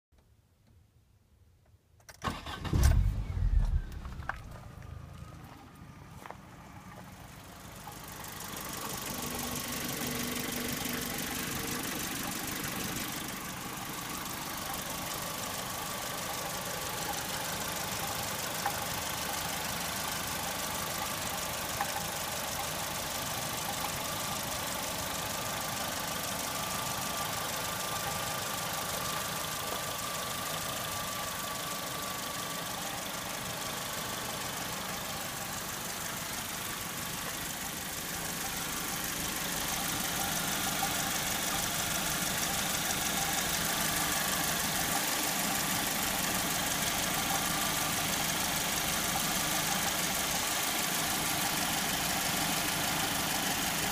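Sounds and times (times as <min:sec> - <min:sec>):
car engine idling: 0:02.2 - 0:53.9.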